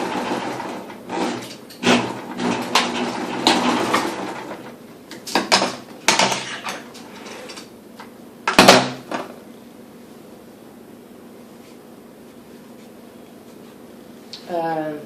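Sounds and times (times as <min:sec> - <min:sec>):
sewing machine humming: 0:00.0 - 0:04.7.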